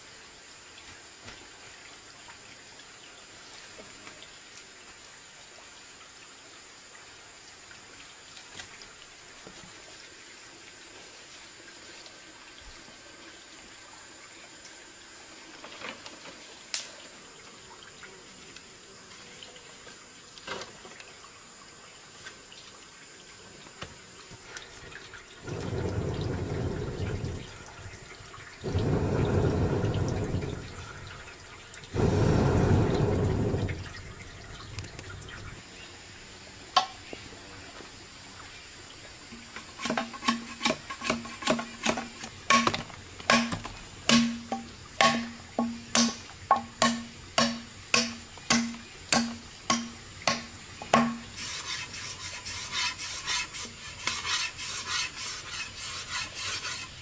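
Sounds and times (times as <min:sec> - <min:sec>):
water rushing: 0:25.4 - 0:36.3
sharp ringing knocks: 0:42.6 - 0:51.2.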